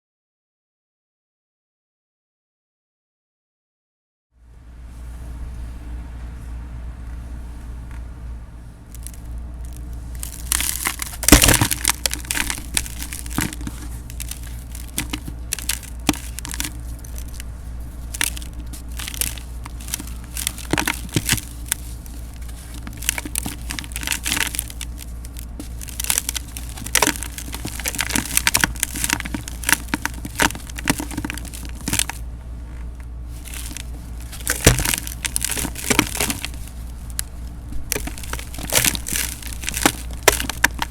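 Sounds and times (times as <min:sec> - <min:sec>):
steady low hum: 0:04.4 - 0:40.9
dried cement crunching in a pot: 0:08.8 - 0:40.9.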